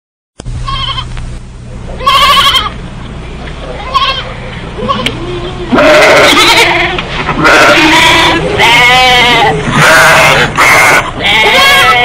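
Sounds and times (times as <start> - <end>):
sheep bleating: 2.0 - 2.8, 3.8 - 12.0.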